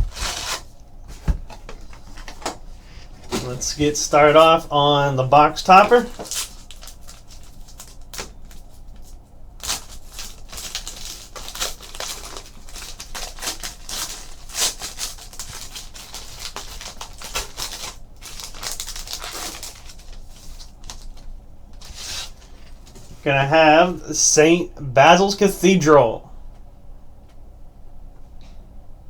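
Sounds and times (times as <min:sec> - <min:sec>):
packaging crinkling and rustling: 0:00.0 - 0:23.2
packaging ripping: 0:05.7 - 0:08.6, 0:09.6 - 0:22.5.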